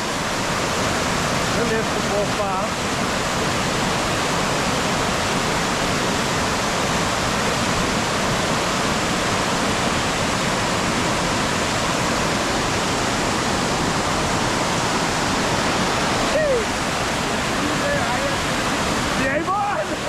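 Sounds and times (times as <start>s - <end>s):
water pouring over waterfall: 0.0s - 20.0s.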